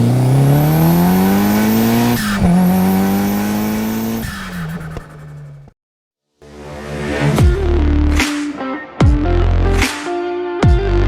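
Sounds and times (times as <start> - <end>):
rally car engine accelerating: 0.0 - 5.7.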